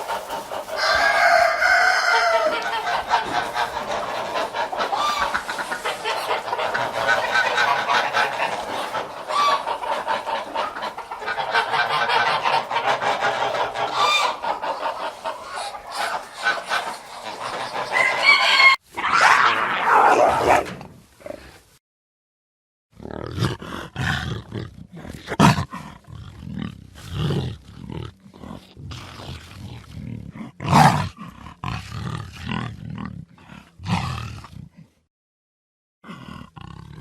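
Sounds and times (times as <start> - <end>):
hen clucking: 0.0 - 18.8
lion roaring: 19.0 - 21.6, 23.0 - 34.8, 36.0 - 37.0.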